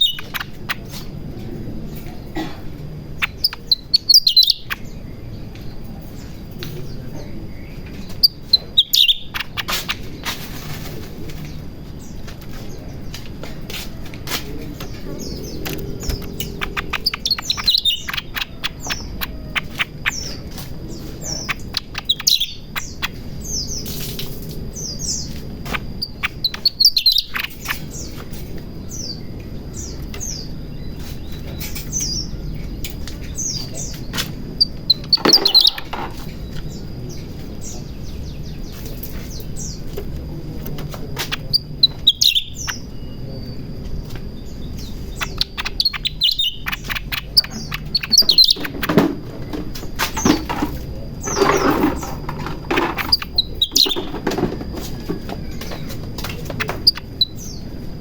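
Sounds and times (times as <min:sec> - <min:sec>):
bird calling rapid sharp chirps: 0:00.0 - 0:01.1, 0:03.0 - 0:05.0, 0:08.0 - 0:10.2, 0:15.2 - 0:20.4, 0:21.2 - 0:23.9, 0:24.8 - 0:28.1, 0:34.6 - 0:36.5, 0:41.3 - 0:42.9, 0:44.7 - 0:49.0, 0:51.2 - 0:54.2, 0:56.6 - 0:57.6.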